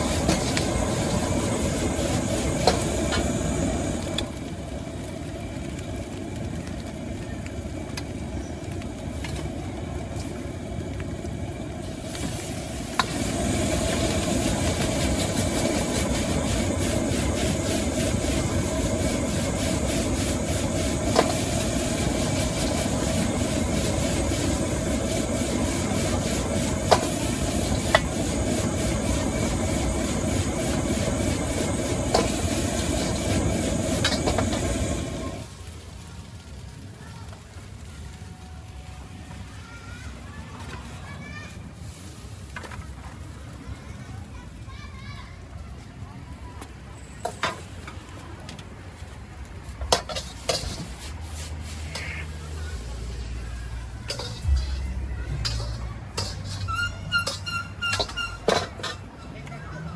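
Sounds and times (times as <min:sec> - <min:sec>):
gas burner rushing: 0:00.0 - 0:35.8, 0:49.4 - 0:59.2
food sizzling in a wok: 0:00.0 - 0:59.9
metal spatula striking wok: 0:53.9 - 0:59.0.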